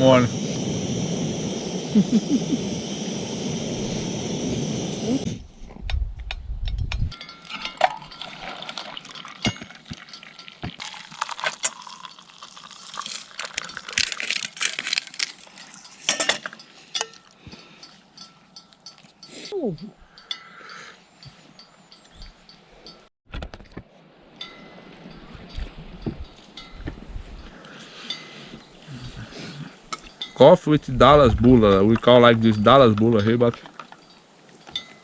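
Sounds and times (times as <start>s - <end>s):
stirring and liquid sounds: 5.6s - 20.4s
cutlery and dishes clinking: 6.8s - 10.8s, 15.8s - 19.4s.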